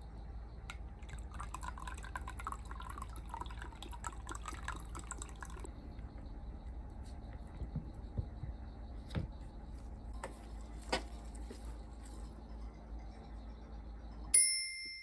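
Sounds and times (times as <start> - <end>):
liquid trickling into a container: 1.0 - 5.7.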